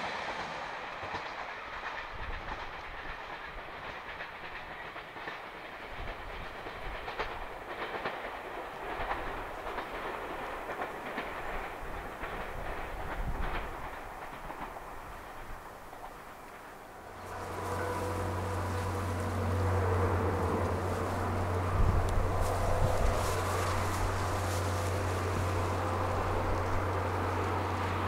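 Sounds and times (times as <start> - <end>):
train wheels clicking over rail joints: 0.0 - 28.0
diesel engine rumble: 16.8 - 28.0.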